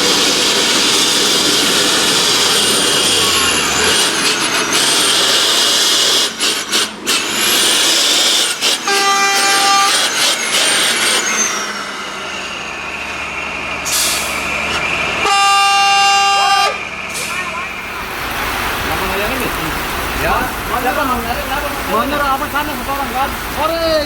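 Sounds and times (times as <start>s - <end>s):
low engine drone: 0.0s - 20.7s
truck engine: 0.0s - 24.0s
truck hiss: 0.0s - 24.0s
truck horn blasts: 8.8s - 10.2s, 15.2s - 17.8s.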